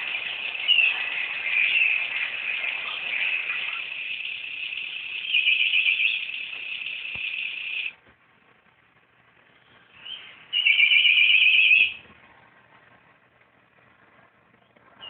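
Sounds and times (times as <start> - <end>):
high trilling bird-like call: 0.0 - 8.0, 9.8 - 12.0.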